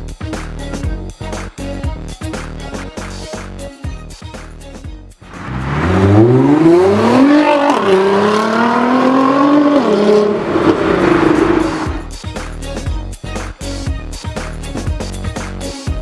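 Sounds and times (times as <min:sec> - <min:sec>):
car engine accelerating hard: 0:05.3 - 0:12.1
gearshift rev drop: 0:05.3 - 0:12.1.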